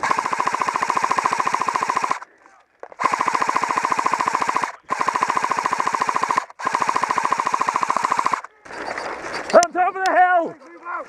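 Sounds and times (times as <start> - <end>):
airsoft gun firing bursts: 0.0 - 2.3, 3.0 - 8.5.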